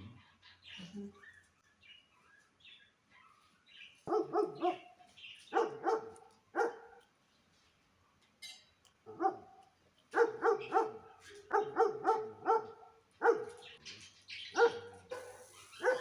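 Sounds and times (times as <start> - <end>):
dog barking: 4.0 - 7.1, 9.1 - 13.8, 14.5 - 16.0.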